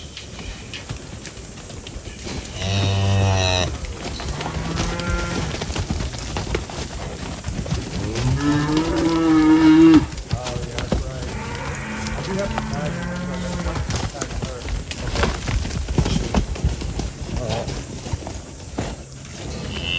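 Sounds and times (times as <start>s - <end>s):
cattle mooing: 2.6s - 5.6s, 8.0s - 10.1s, 11.1s - 14.2s.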